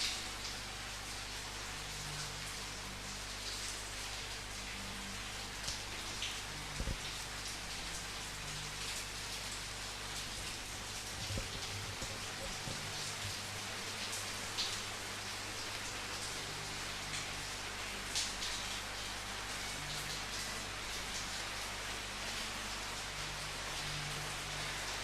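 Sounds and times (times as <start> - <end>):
steady rainfall: 0.0 - 25.0
raindrops landing: 6.7 - 7.2, 9.9 - 14.8.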